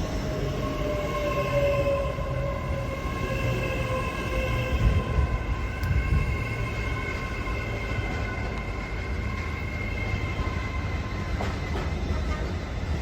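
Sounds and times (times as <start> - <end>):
low train rumble: 0.0 - 13.0
train whining tones: 0.0 - 13.0.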